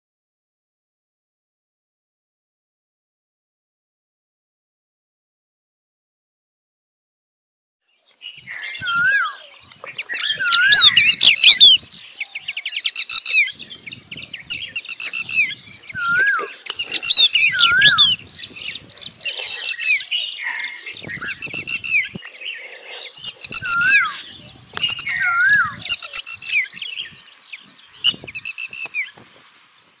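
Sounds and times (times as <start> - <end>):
songbirds trilling chatter: 8.0 - 30.0
bird whistled note: 15.3 - 18.2, 23.5 - 24.2.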